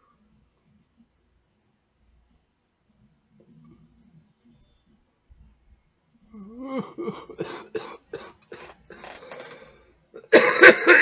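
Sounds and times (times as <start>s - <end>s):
man coughing: 6.7s - 9.1s, 10.2s - 11.0s.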